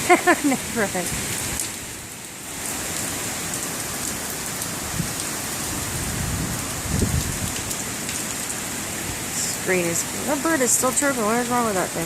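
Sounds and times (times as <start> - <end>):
wind and driving rain: 0.0 - 12.0
wind buffeting microphone: 4.8 - 7.8.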